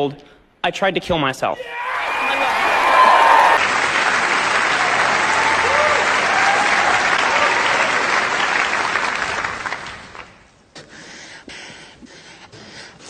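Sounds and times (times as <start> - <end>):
audience applause: 1.9 - 10.5.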